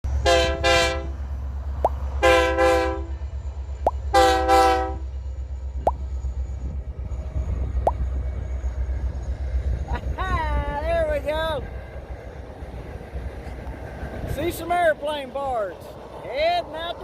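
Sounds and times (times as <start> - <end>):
low rumble of train: 0.0 - 17.0
locomotive air horn blasts: 0.2 - 1.2, 2.2 - 3.2, 4.1 - 5.1.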